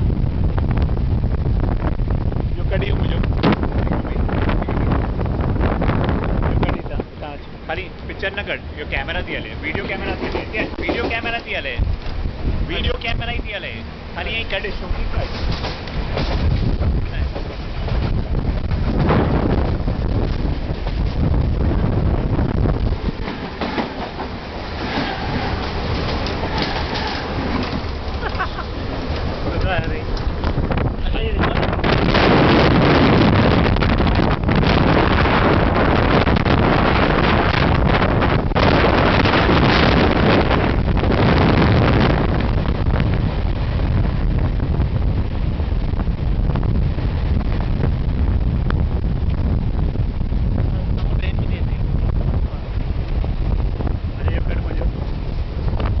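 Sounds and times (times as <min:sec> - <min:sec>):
passing train rushing by: 0:00.0 - 0:56.0
wind buffeting microphone: 0:00.0 - 0:56.0
train wheels clattering over joints: 0:09.0 - 0:13.1, 0:14.4 - 0:21.6, 0:22.5 - 0:32.4.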